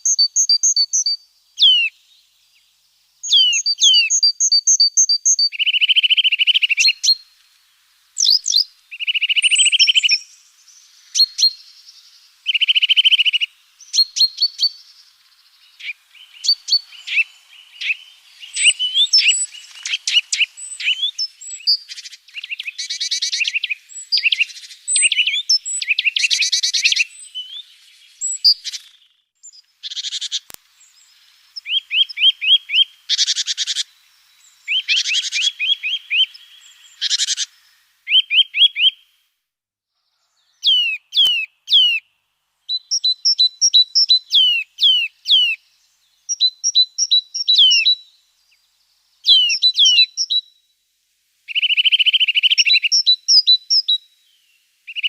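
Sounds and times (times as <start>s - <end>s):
down-slurred whistled bird notes: 0.0s - 2.0s, 2.6s - 7.3s, 8.2s - 29.7s, 38.1s - 39.0s, 40.1s - 42.0s, 42.7s - 45.6s, 46.2s - 48.6s, 49.2s - 50.6s, 51.5s - 55.0s
songbirds trilling: 0.0s - 38.9s, 40.1s - 42.0s, 42.7s - 50.4s.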